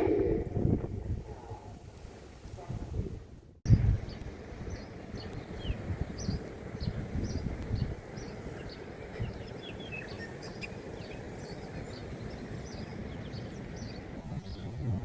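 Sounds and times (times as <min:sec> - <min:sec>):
low outdoor rumble: 0:00.0 - 0:01.3
small birds chirping: 0:04.1 - 0:15.0.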